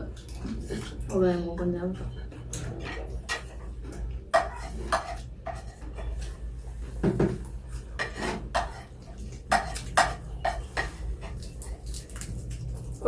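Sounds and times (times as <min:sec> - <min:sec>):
cutlery clinking on plates: 0:02.6 - 0:06.3, 0:07.0 - 0:11.5.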